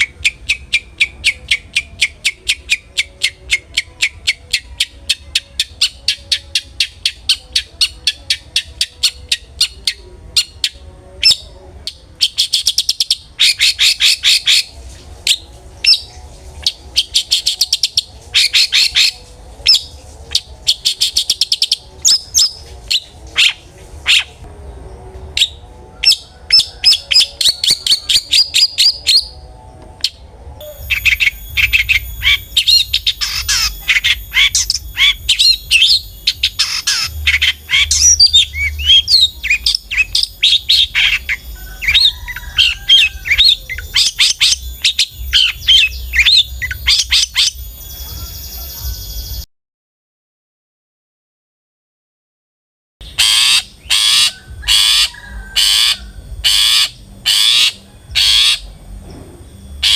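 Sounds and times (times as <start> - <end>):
bird singing harsh chattering notes: 15.3 - 24.4, 30.1 - 49.4, 53.0 - 59.9.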